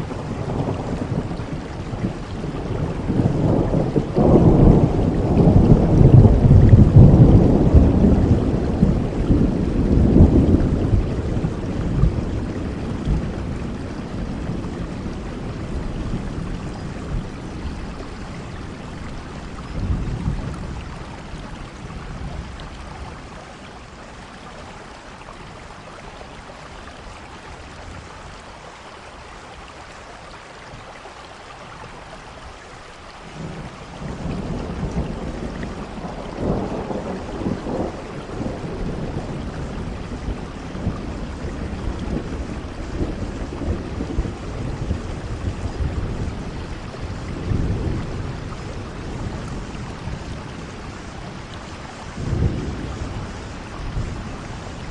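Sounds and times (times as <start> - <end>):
thunder rolling: 0.0 - 21.3, 33.4 - 54.9
steady rain falling: 0.0 - 54.9.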